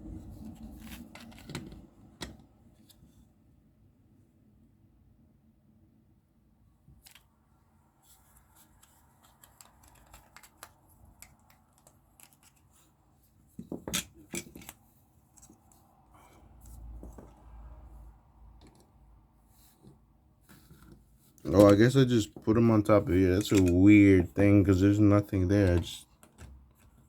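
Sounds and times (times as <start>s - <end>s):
plastic parts clicking and tapping: 8.6s - 12.8s, 13.6s - 14.8s, 23.3s - 23.9s, 25.6s - 27.0s.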